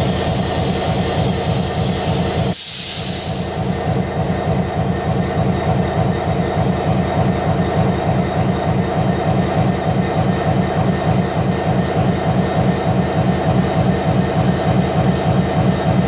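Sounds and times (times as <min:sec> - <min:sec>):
short hiss: 0:02.5 - 0:03.5.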